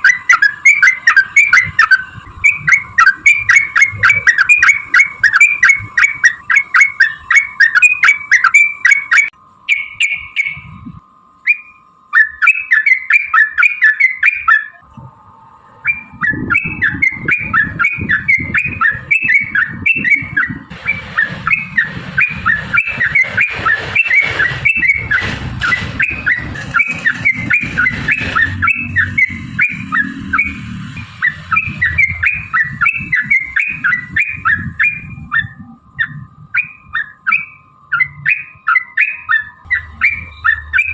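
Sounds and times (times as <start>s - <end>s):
bird bubbling chirps: 0.0s - 10.7s
low rumbling noise: 0.0s - 12.1s, 14.8s - 40.9s.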